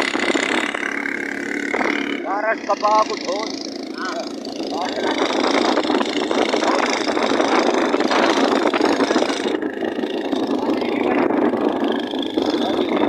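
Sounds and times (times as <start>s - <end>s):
motor engine running: 0.0s - 13.0s.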